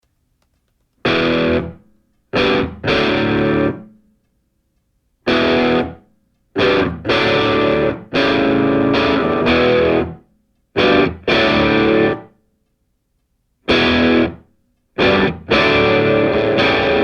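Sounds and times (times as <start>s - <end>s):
distorted electric guitar chords: 1.0s - 1.8s, 2.4s - 4.0s, 5.3s - 6.0s, 6.6s - 10.2s, 10.8s - 12.3s, 13.7s - 14.4s, 15.0s - 17.0s.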